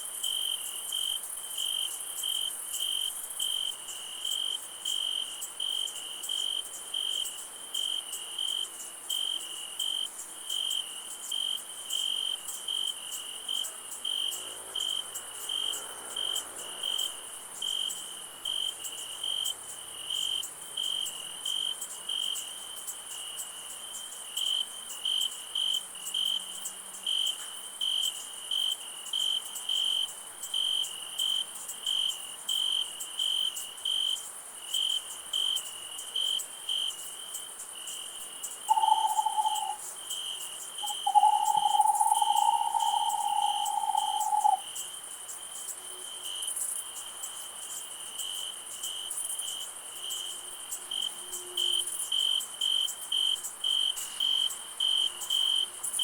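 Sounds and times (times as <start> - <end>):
crickets chirping: 0.0 - 56.0
high insect hiss: 0.0 - 56.0
owl hooting: 38.7 - 39.8, 40.8 - 44.6.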